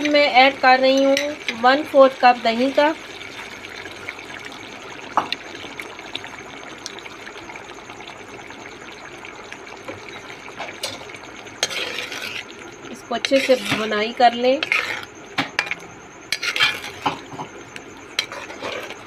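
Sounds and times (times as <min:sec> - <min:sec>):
meat frying in a metal wok: 0:00.0 - 0:06.4, 0:09.8 - 0:12.5, 0:18.2 - 0:19.0.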